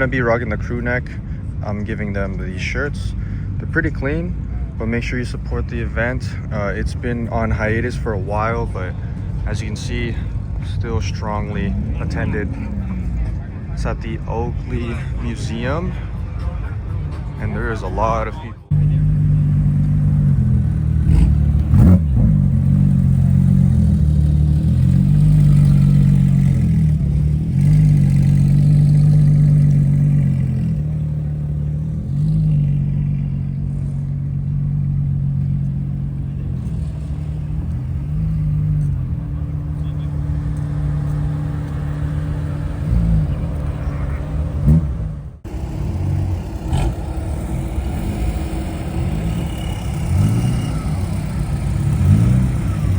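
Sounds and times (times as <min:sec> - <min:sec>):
car engine running: 0:18.4 - 0:52.9.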